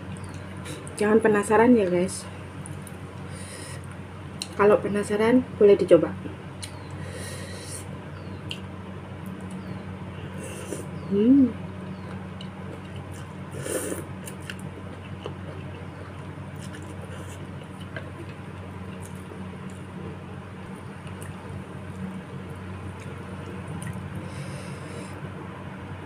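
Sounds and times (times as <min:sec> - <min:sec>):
steady low hum: 0:00.0 - 0:26.0
chewing and wet mouth sounds: 0:12.0 - 0:20.2, 0:21.0 - 0:25.0.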